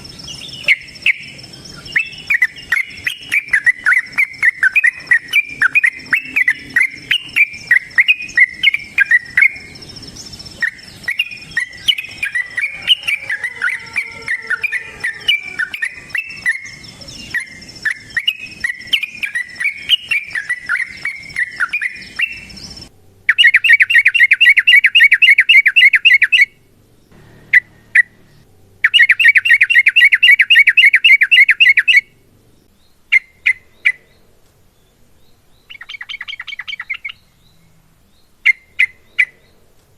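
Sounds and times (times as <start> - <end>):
steady high whine: 0.0 - 23.4, 26.6 - 30.6
bird rapid rolling trills: 0.0 - 37.6
bird chattering song: 0.0 - 39.6.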